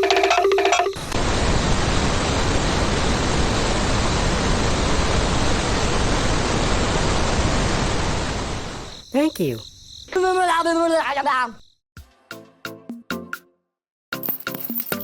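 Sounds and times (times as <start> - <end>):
steady rushing hiss: 1.0 - 9.0.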